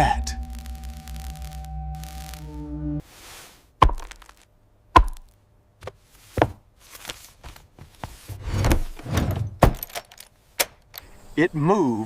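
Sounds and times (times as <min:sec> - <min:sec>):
humming drone: 0:00.0 - 0:03.0.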